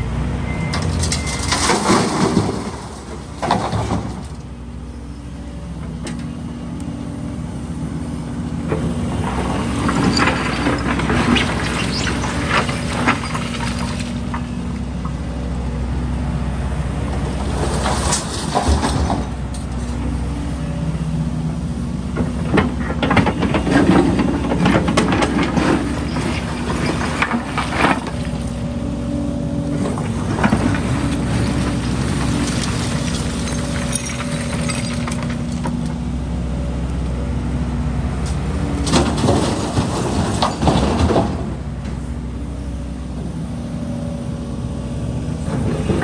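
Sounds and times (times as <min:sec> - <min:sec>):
diesel machinery running: 0:00.0 - 0:46.0
concrete rubble clattering: 0:01.0 - 0:04.3, 0:09.2 - 0:14.5, 0:22.3 - 0:28.5, 0:29.8 - 0:36.0, 0:38.9 - 0:41.5.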